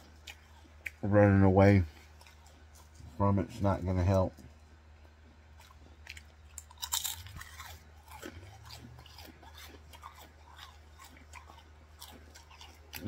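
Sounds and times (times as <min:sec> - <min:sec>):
person chewing crunchy food: 0:00.0 - 0:01.0, 0:01.8 - 0:03.2, 0:05.0 - 0:13.0.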